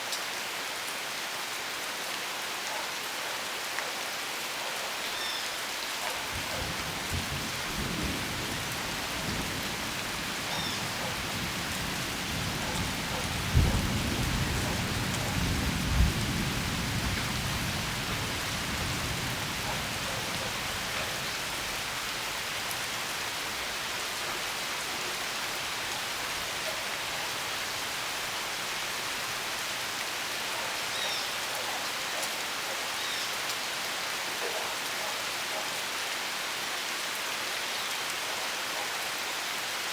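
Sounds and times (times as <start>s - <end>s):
steady rain: 0.0s - 39.9s
low rumble of thunder: 6.2s - 22.0s.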